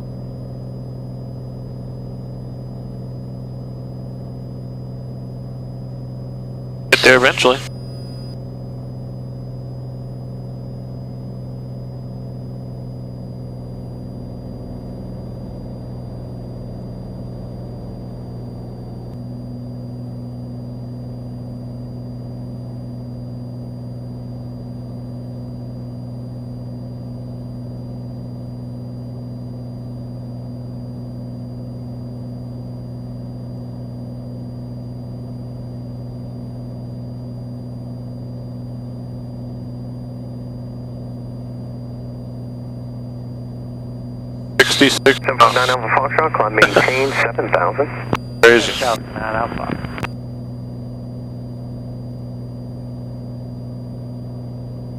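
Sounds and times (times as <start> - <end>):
propeller plane engine droning: 1.6 - 25.1, 40.5 - 52.5
thin high whine: 44.6 - 50.1.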